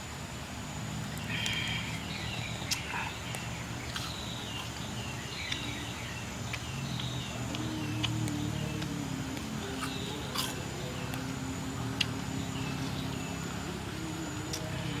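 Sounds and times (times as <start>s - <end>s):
low steady hum: 0.0s - 15.0s
small bird chirping: 1.1s - 9.0s.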